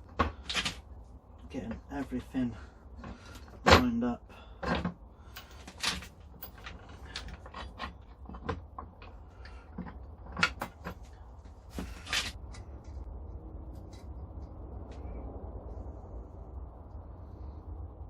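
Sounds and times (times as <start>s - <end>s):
metal parts clinking: 4.6s - 12.4s.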